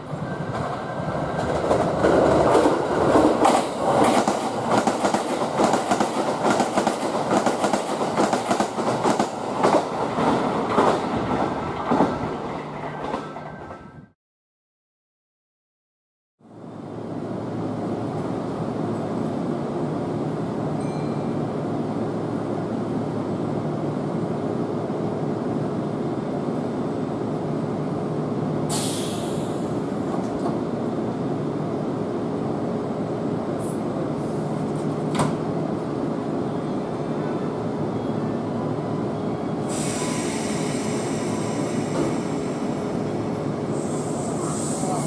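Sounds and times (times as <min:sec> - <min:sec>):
air hiss: 0:28.7 - 0:29.7, 0:39.7 - 0:42.8, 0:43.7 - 0:45.0.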